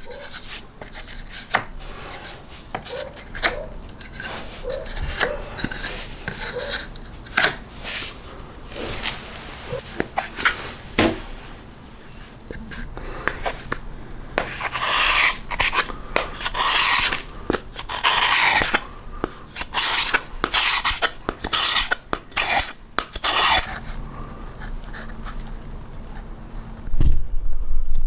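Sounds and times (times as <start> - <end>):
sanding plywood by hand: 14.4 - 23.7.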